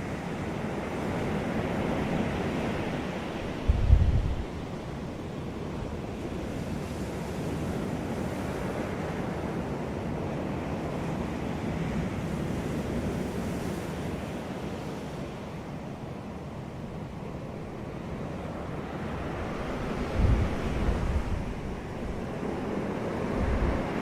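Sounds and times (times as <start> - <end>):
ocean surf washing onto beach: 0.0 - 24.0
wind buffeting microphone: 1.3 - 4.8, 18.5 - 24.0.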